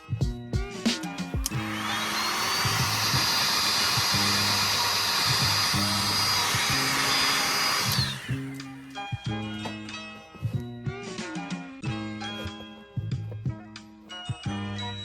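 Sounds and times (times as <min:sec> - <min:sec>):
background music: 0:00.0 - 0:15.0
heat gun fan whine: 0:01.4 - 0:09.0.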